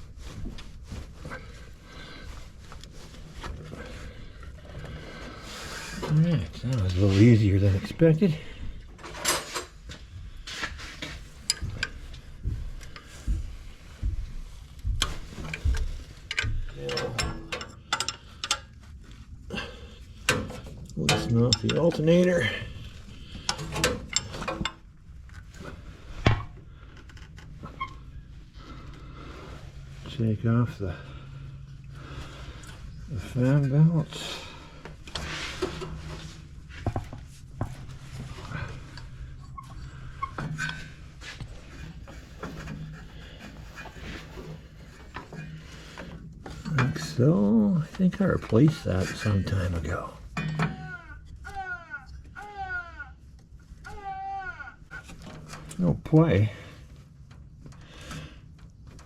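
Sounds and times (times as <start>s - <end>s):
tools clanking on metal: 15.0s - 18.8s, 20.2s - 22.8s, 23.4s - 24.9s, 48.0s - 50.9s.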